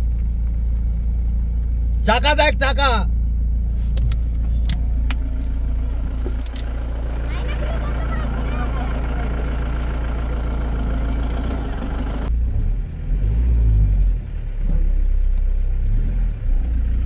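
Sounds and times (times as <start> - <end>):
deep uneven rumble: 0.0 - 2.0, 3.1 - 13.1
car engine running: 0.0 - 17.0.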